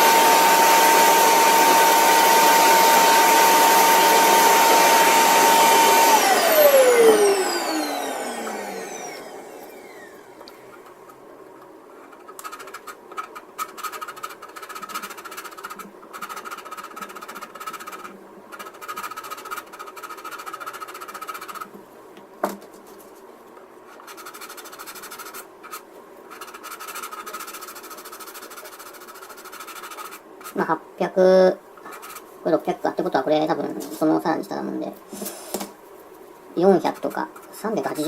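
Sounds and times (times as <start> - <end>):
vacuum cleaner winding down: 0.0 - 10.6
sandpaper rasping on plastic: 12.0 - 21.7, 23.9 - 30.6, 31.9 - 32.3.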